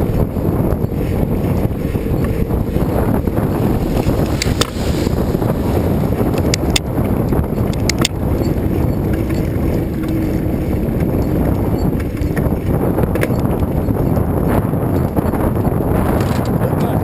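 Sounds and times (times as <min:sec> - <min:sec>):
wind rushing over microphone: 0:00.0 - 0:17.0
bicycle clicks and rattles: 0:06.2 - 0:16.6.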